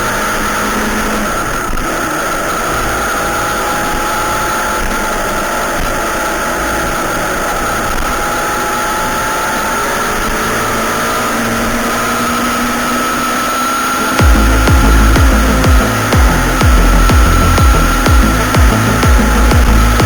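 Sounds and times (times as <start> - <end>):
motorcycle engine whining at high revs: 0.0 - 20.0
steady rush of noise: 13.5 - 20.0.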